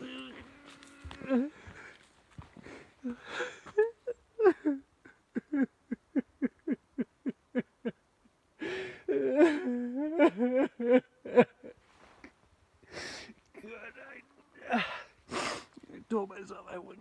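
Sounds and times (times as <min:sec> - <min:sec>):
man wailing cry: 0:00.0 - 0:01.8, 0:09.1 - 0:11.7, 0:13.6 - 0:15.1
man sobbing: 0:01.0 - 0:02.0, 0:02.6 - 0:08.0, 0:08.6 - 0:11.8, 0:13.0 - 0:16.1.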